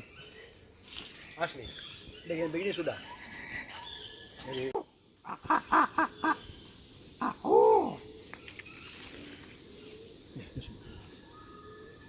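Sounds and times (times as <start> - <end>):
high insect drone: 0.0 - 12.0
pigeon hooting calls: 5.3 - 6.5.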